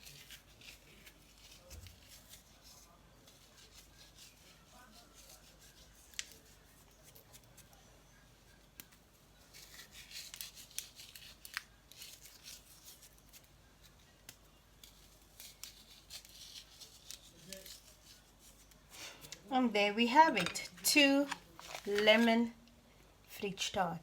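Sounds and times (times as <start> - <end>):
biscuit crumbling between fingers: 8.7 - 19.4.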